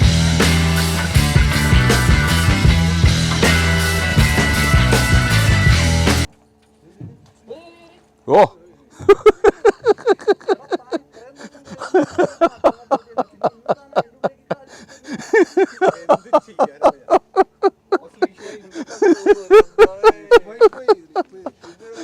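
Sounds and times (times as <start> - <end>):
people laughing hard: 8.9 - 22.0.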